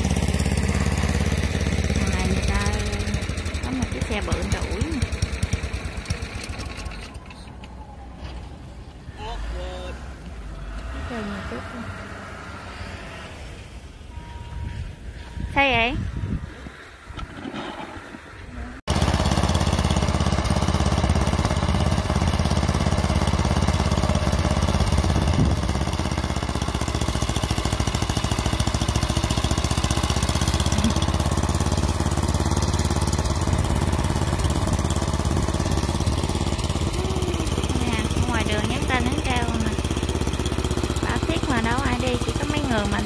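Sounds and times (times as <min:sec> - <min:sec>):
snow blower engine running: 0:00.0 - 0:07.5, 0:18.9 - 0:43.0.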